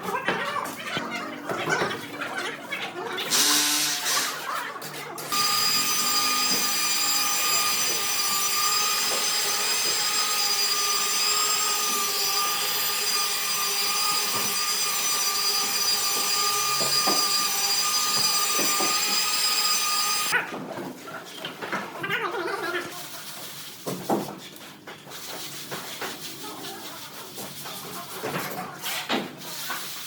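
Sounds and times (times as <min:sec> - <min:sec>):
electric power tool whining: 0:05.3 - 0:20.4.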